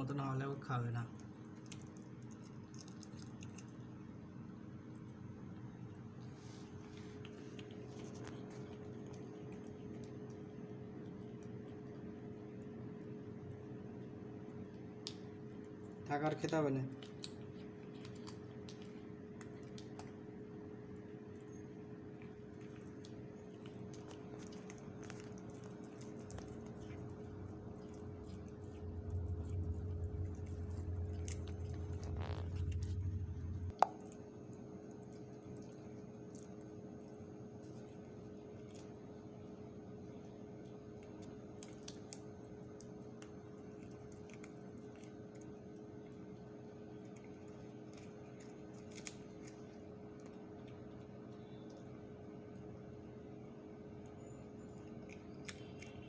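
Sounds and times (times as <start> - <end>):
cat chewing: 0.0 - 56.0
steady background hum: 0.0 - 56.0
steady hum: 17.0 - 41.8.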